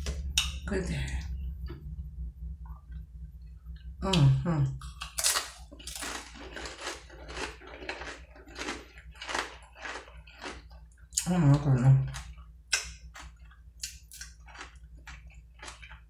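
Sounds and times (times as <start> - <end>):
crunchy chip chewing: 5.0 - 10.9, 12.2 - 16.0.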